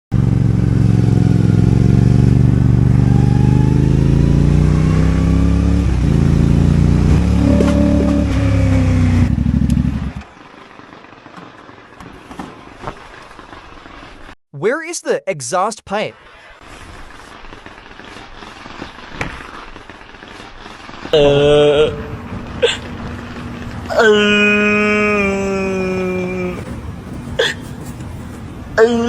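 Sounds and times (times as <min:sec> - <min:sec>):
motorcycle engine revving: 0:00.2 - 0:10.3, 0:21.2 - 0:28.4.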